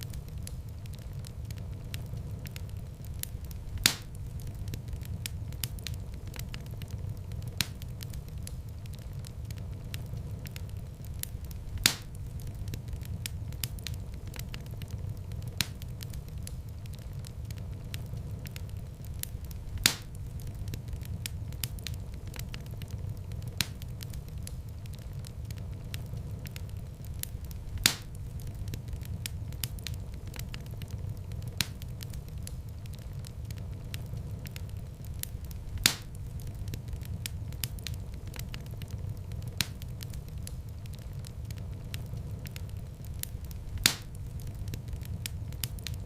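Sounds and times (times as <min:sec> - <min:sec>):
low rumble of flames: 0:00.0 - 0:46.0
sharp pops of fire: 0:00.0 - 0:46.0
wood fire crackling: 0:00.0 - 0:46.0
loud pop of fire: 0:03.2 - 0:06.9, 0:11.2 - 0:14.0, 0:19.2 - 0:22.0, 0:27.2 - 0:32.6, 0:35.2 - 0:40.6, 0:43.2 - 0:46.0.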